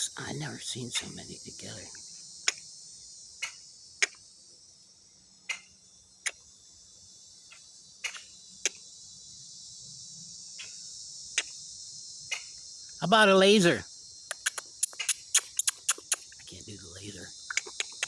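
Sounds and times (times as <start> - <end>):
high-pitched insect chorus: 0.0 - 18.0
bird clicking calls: 7.5 - 8.8, 14.3 - 16.5, 17.5 - 18.0.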